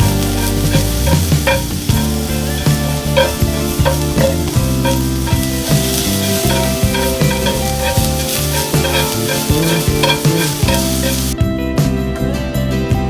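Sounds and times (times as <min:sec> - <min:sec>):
food sizzling in a pan: 0:00.0 - 0:11.4
background music: 0:00.0 - 0:13.0.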